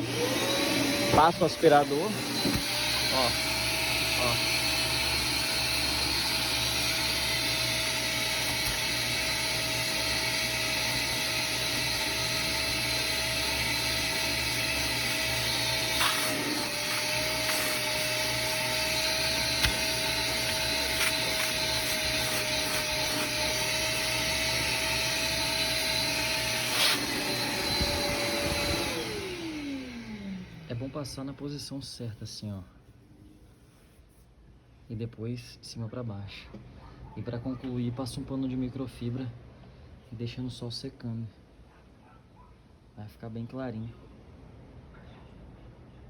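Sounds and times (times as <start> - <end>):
vacuum cleaner motor whine: 0.0 - 31.4.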